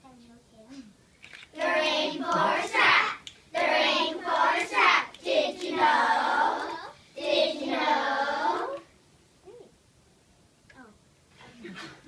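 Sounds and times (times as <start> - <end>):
children singing in unison: 1.6 - 8.9.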